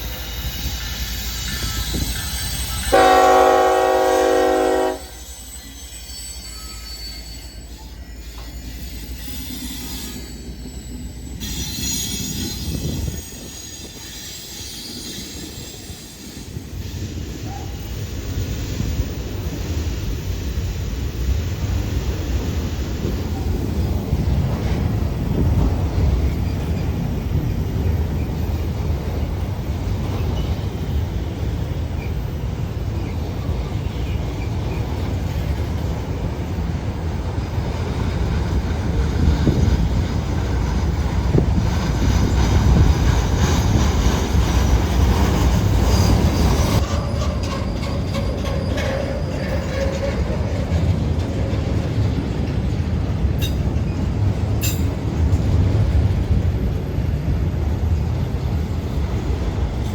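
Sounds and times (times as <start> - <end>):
freight train rumbling past: 0.0 - 59.9
high-pitched wheel squeal: 0.2 - 18.5, 42.2 - 50.9.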